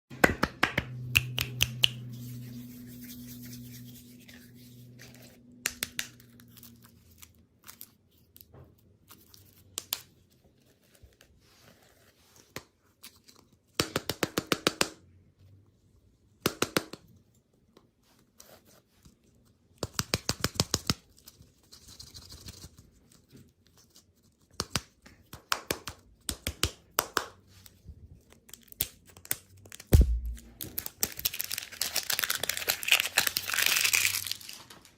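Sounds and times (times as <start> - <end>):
low hum: 0.8 - 5.6, 30.0 - 30.7
packaging clicking and crinkling: 30.5 - 34.9.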